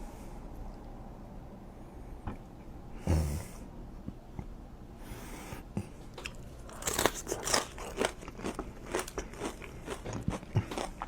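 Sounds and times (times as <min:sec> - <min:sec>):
crunchy chewing: 0:05.8 - 0:11.0.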